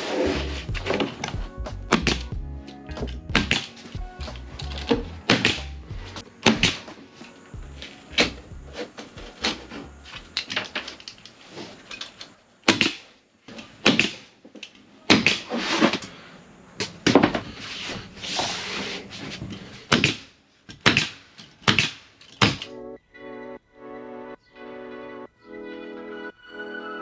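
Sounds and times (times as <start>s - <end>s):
scraping hissing: 17.5s - 19.9s.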